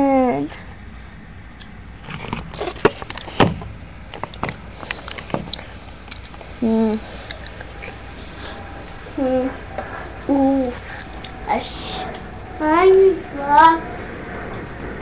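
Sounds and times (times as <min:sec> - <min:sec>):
sharp clicks and knocks: 0:01.6 - 0:06.5.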